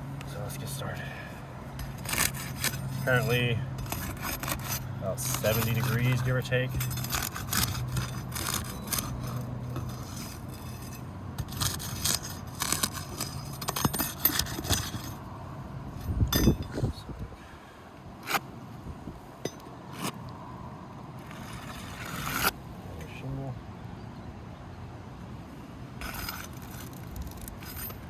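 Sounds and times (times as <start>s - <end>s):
scraping under roof shingle: 1.3s - 15.2s, 19.5s - 20.2s, 21.2s - 22.6s, 26.0s - 28.0s.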